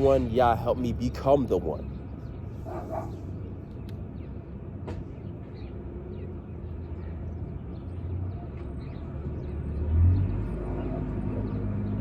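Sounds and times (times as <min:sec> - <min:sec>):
low rumble of traffic: 0:00.0 - 0:12.0
vehicle passing: 0:09.0 - 0:12.0.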